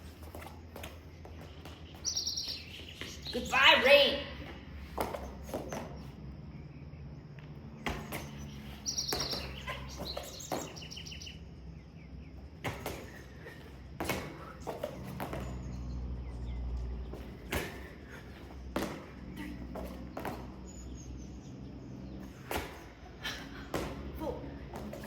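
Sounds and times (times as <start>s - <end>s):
birds chirping: 0.0s - 25.0s
thumps of people landing: 7.8s - 11.2s, 12.4s - 15.8s, 17.0s - 20.9s, 22.3s - 23.0s, 23.6s - 25.0s.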